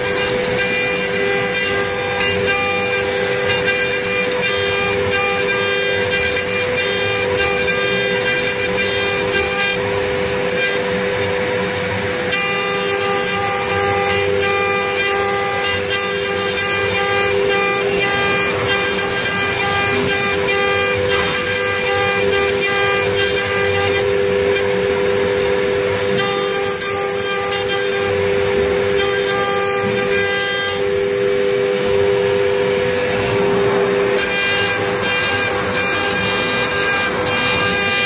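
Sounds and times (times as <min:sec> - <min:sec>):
bit cutting wood: 0:00.0 - 0:38.0
router spindle whine: 0:00.0 - 0:38.0.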